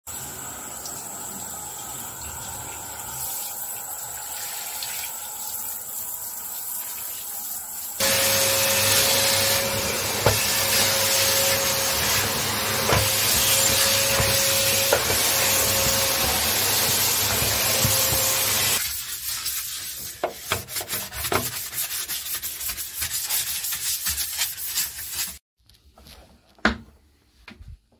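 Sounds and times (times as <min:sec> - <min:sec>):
vacuum cleaner motor whining: 0:08.0 - 0:18.8.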